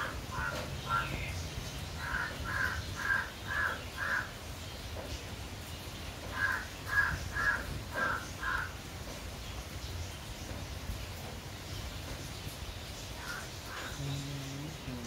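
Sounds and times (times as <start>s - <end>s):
bird harsh calls: 0.0s - 4.4s, 13.1s - 15.0s
steady low hum: 13.9s - 15.0s.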